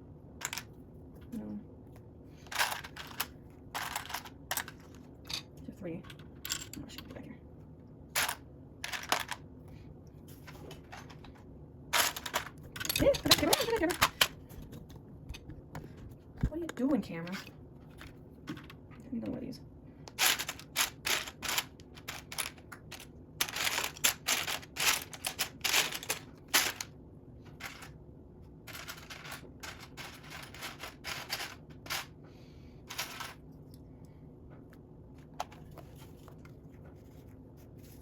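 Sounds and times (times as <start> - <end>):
plastic bricks clattering: 0.4 - 0.8, 2.4 - 5.5, 8.2 - 9.4, 12.0 - 15.5, 20.1 - 26.9, 27.5 - 28.0, 28.7 - 32.1.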